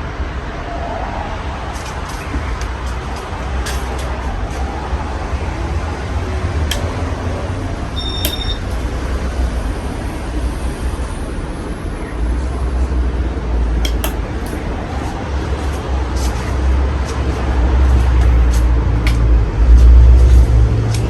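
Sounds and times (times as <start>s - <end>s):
sharp clicks: 6.7s - 7.0s, 8.2s - 8.9s, 13.8s - 14.6s.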